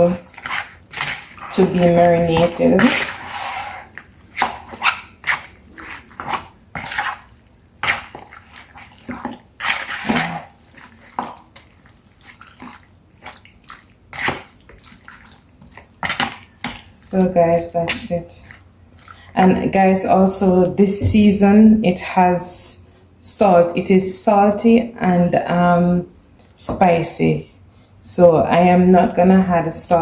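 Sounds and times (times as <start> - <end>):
hands squishing wet chicken: 0.0 - 17.1, 17.8 - 19.4.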